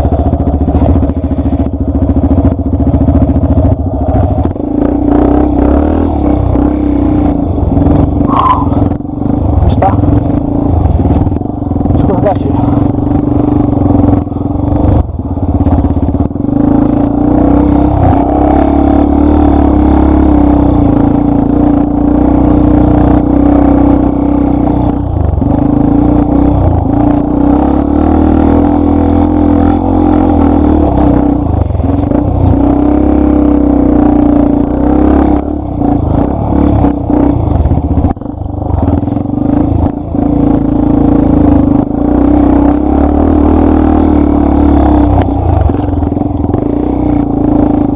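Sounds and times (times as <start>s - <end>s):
motorcycle engine running under load: 0.0s - 47.9s
motorcycle rattling and clatter: 0.0s - 47.9s.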